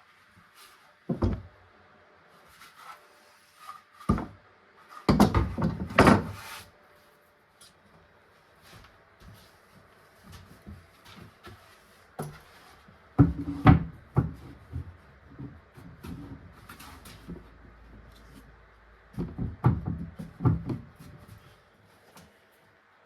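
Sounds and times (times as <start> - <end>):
wooden knocks and clatter: 1.1 - 1.5, 5.0 - 6.4, 13.2 - 18.1, 19.1 - 21.3.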